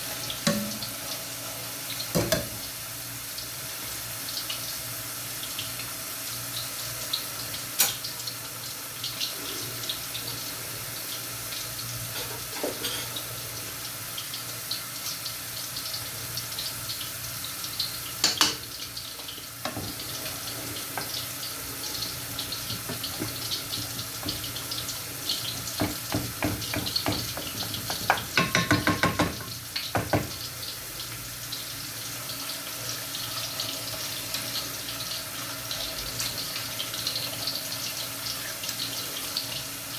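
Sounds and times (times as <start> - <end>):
tap water running into sink: 0.1 - 1.2, 1.9 - 2.8, 15.2 - 31.6
knocks: 25.8 - 30.4.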